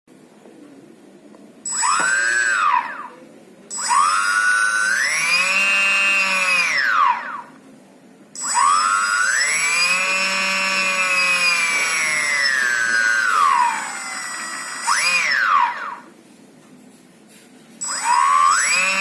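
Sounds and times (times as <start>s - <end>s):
fan motor whining: 1.6s - 7.6s, 8.4s - 16.2s, 17.8s - 19.0s.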